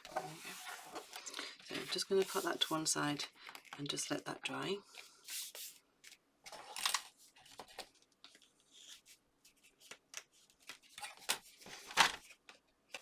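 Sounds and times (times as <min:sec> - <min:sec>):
paper rustling: 0:00.0 - 0:03.8.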